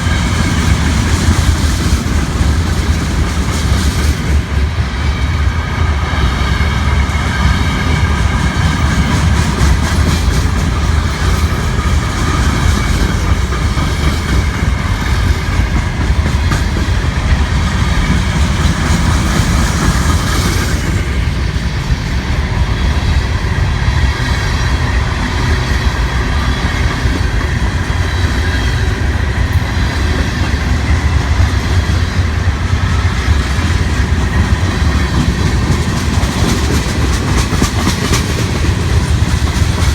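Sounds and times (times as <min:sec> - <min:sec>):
train cars rumbling: 0:00.0 - 0:39.9
wheels clacking over rail joints: 0:06.4 - 0:21.8, 0:24.6 - 0:39.9.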